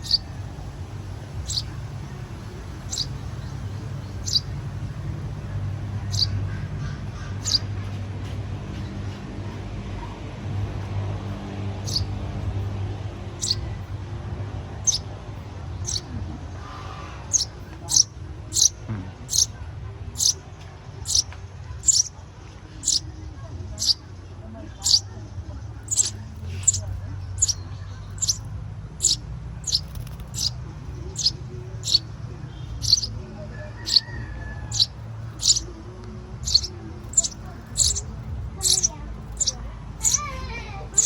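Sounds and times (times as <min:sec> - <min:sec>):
young birds peeping: 0:00.0 - 0:41.0
steady low hum: 0:24.8 - 0:41.0.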